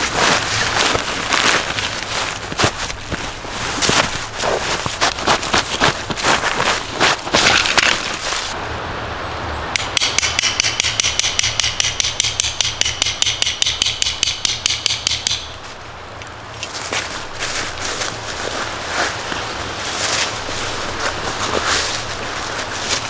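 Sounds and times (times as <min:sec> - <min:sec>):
rapid sharp strikes: 0:09.8 - 0:15.7.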